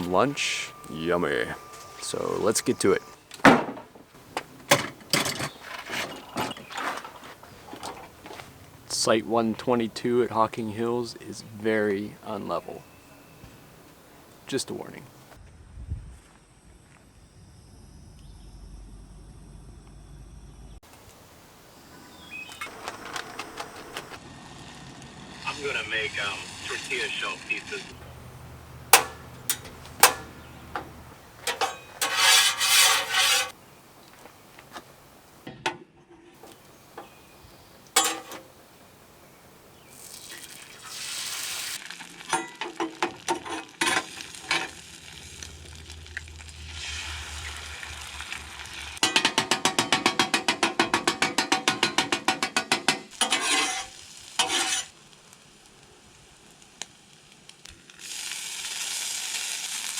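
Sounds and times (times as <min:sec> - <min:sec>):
food sizzling on a griddle: 0:24.4 - 0:28.7, 0:39.2 - 0:49.0, 0:53.1 - 0:59.9
spatula scraping and tapping: 0:28.0 - 0:33.6, 0:38.0 - 0:38.6, 0:53.2 - 0:54.9.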